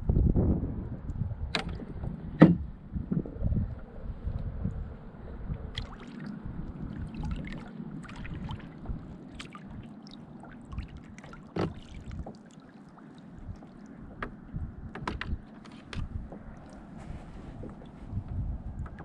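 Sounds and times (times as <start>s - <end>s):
steady low rumble: 0.0s - 19.0s
water splashing against kayak: 5.6s - 19.0s.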